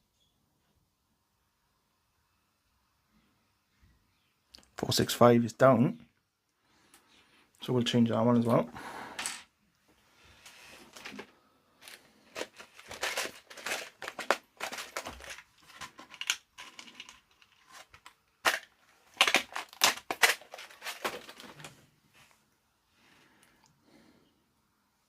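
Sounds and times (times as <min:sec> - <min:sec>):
rustling and crinkling packaging: 0:10.3 - 0:22.4.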